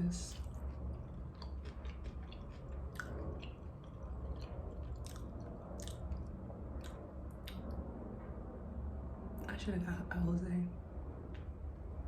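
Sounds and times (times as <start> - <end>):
chewing: 0.3 - 7.8
wet mouth clicks and smacks: 0.3 - 7.8.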